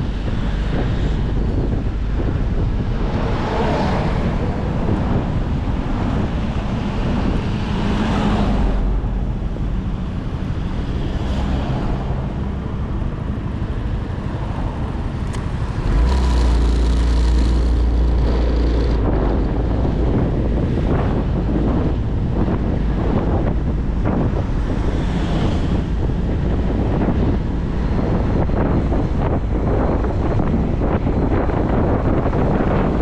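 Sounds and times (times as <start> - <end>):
road noise: 0.0 - 33.0
wind buffeting microphone: 0.0 - 33.0
motorcycle engine: 13.2 - 21.9.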